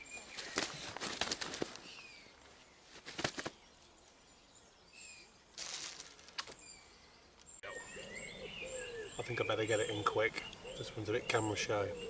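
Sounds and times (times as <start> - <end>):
small birds chirping: 0.0 - 12.0
rustling: 0.2 - 4.2, 5.5 - 6.8.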